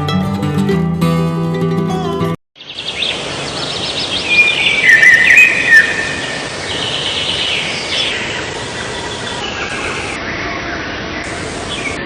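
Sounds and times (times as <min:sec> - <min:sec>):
birds chirping: 0:02.6 - 0:12.0.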